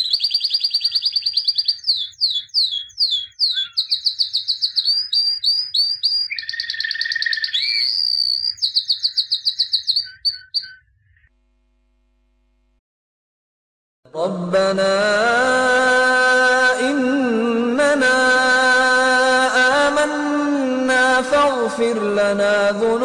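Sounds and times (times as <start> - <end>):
songbird singing: 0.0 - 11.3.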